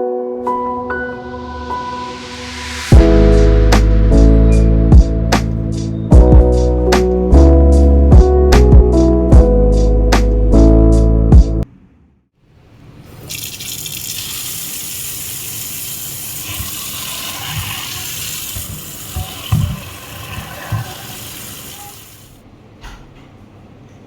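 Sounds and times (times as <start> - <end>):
tap water running into sink: 13.2 - 22.4.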